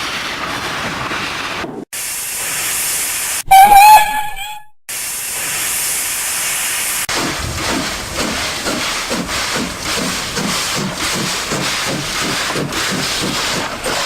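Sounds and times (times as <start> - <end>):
steam hissing: 2.0 - 3.6, 4.9 - 14.0
steam whistle: 3.5 - 4.7
locomotive exhaust chuffing: 7.1 - 14.0.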